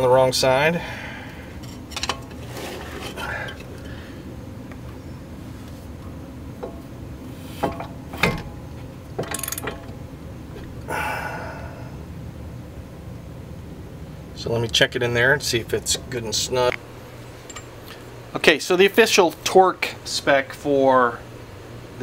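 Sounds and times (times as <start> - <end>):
metal clicks and clinks: 9.2 - 9.9, 17.4 - 17.7.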